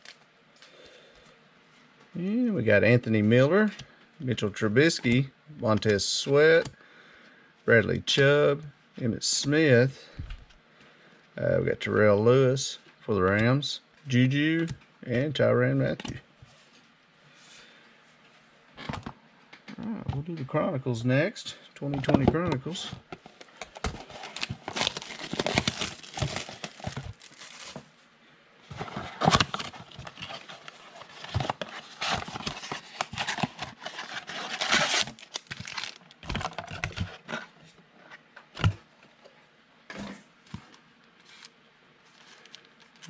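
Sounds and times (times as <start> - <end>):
wrapper tearing and crinkling: 23.8 - 27.9, 28.8 - 37.0.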